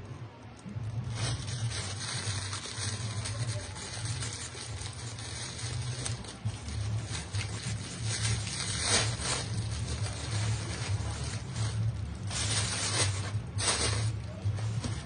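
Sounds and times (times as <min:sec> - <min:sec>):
shoe box handling rustle: 0:07.0 - 0:15.0.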